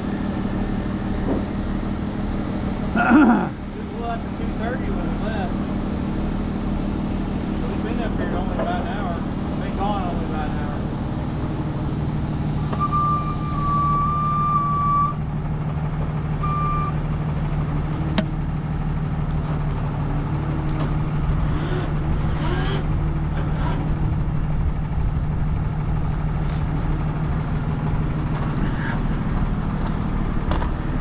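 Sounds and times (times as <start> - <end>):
diesel truck engine running: 0.0 - 31.0
electronic beep tone: 12.7 - 15.2, 16.4 - 17.0.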